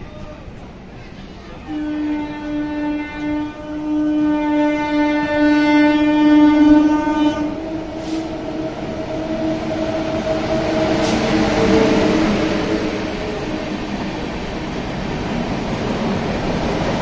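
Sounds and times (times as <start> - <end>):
trains rumbling: 0.0 - 17.0
train horn: 1.5 - 13.6.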